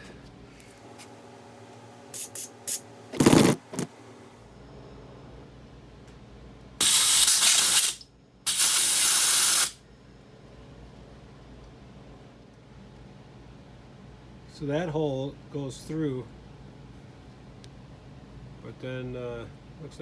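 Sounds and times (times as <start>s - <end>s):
hissing spray bursts: 6.8s - 9.8s.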